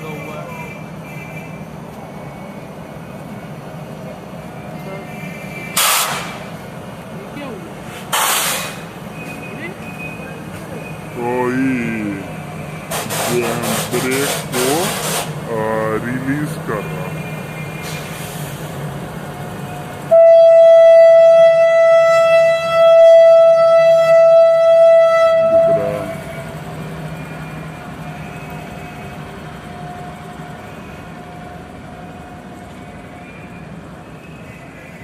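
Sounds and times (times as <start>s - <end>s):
train low hum: 0.0s - 35.0s
locomotive horn blast: 20.1s - 26.6s.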